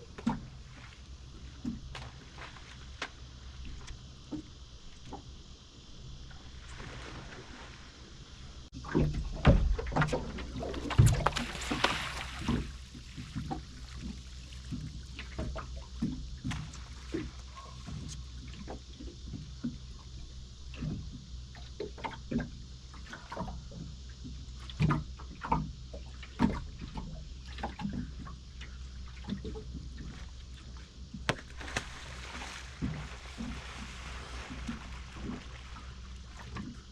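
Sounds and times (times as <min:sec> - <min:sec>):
boat engine droning: 0:00.0 - 0:36.9
water splashing against hull: 0:00.0 - 0:36.9
knocks against hull: 0:08.8 - 0:18.8, 0:31.2 - 0:36.8.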